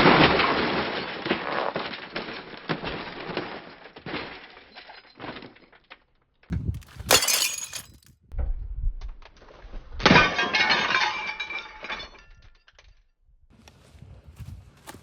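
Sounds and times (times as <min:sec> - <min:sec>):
glass breaking: 0:07.1 - 0:08.0
pieces clattering: 0:07.1 - 0:08.0.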